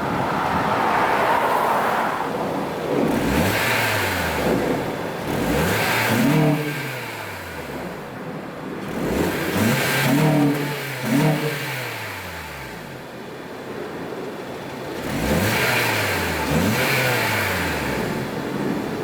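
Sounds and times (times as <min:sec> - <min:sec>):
car engine revving: 0:00.0 - 0:13.0, 0:15.0 - 0:18.7.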